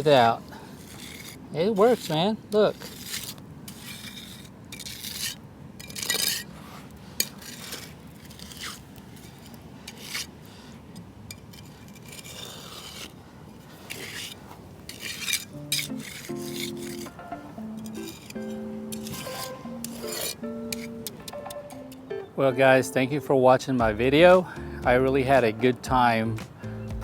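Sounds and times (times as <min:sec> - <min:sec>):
shovel scraping wet cement: 0:00.0 - 0:21.2
music: 0:15.6 - 0:27.0.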